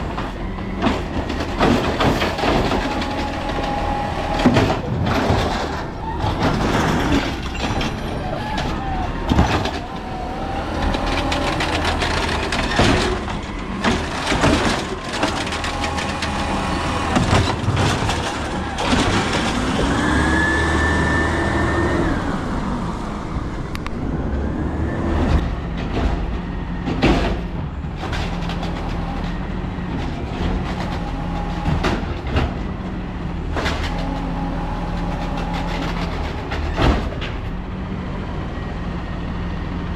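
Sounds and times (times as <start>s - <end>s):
metal clanks and bangs: 0.0s - 10.0s, 11.2s - 19.7s
diesel engine revving: 0.0s - 39.9s.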